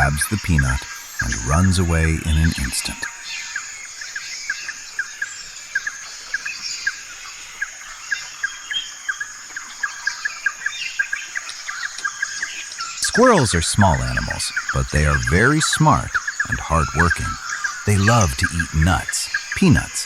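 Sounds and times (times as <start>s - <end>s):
birds chirping: 0.0s - 20.0s
steady high-pitched hiss: 0.0s - 20.0s.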